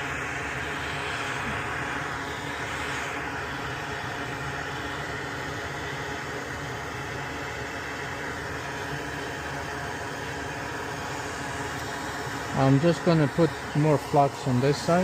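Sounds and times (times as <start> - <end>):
low machine hum: 0.0 - 15.0
machine hissing: 10.9 - 15.0.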